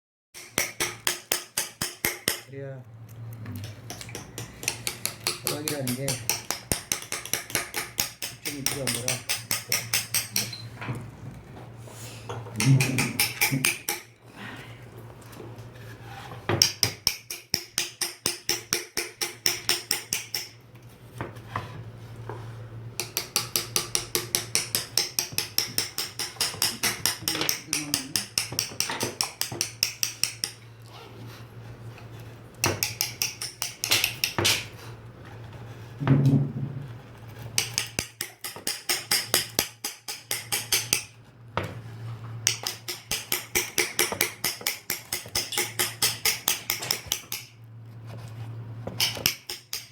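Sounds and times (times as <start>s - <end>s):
mallet tapping chisel into wood: 0.4s - 2.5s, 3.6s - 10.6s, 12.6s - 14.1s, 16.5s - 20.6s, 23.0s - 30.6s, 32.6s - 34.6s, 37.6s - 41.1s, 42.4s - 47.5s, 49.0s - 49.9s.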